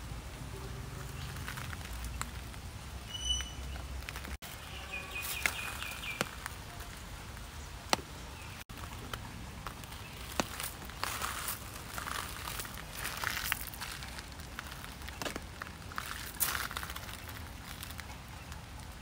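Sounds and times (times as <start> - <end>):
small bird chirping: 3.0 - 6.9.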